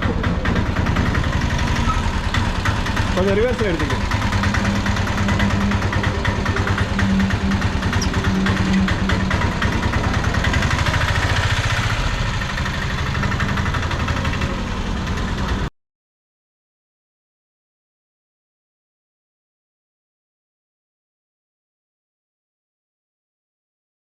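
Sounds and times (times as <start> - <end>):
vehicle engine reversing: 0.0 - 15.7.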